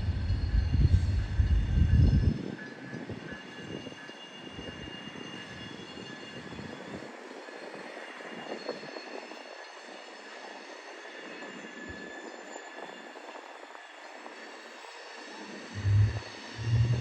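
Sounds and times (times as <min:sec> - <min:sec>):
deep train rumble: 0:00.0 - 0:02.4, 0:15.7 - 0:17.0
train wheels hissing on track: 0:00.0 - 0:17.0.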